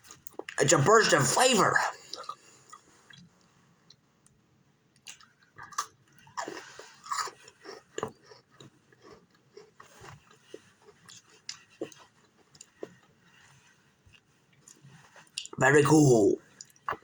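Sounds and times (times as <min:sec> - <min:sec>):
person chewing crunchy cookies: 0:00.0 - 0:00.6, 0:01.7 - 0:17.0.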